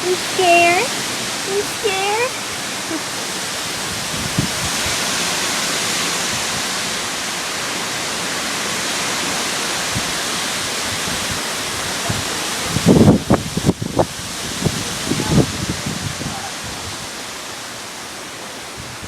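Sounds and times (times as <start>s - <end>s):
heavy rain: 0.0s - 19.0s
strong wind: 0.0s - 19.0s.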